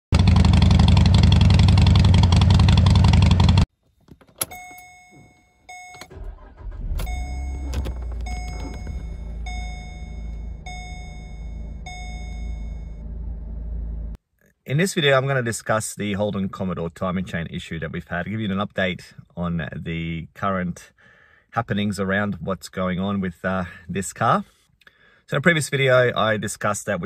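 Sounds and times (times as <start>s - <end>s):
car engine starting and idling: 0.2s - 14.2s
two-note dashboard warning chime: 4.5s - 13.1s.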